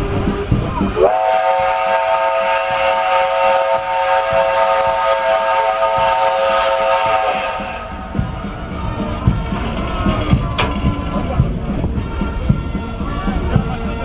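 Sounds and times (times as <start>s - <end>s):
steam locomotive whistle: 0.0s - 8.1s.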